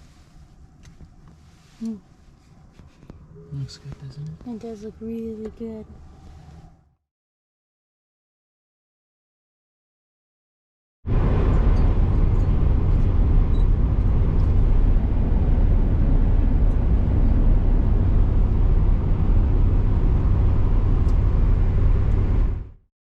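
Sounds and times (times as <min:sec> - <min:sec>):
vehicle engine and road noise: 0:00.0 - 0:07.0, 0:11.1 - 0:22.8.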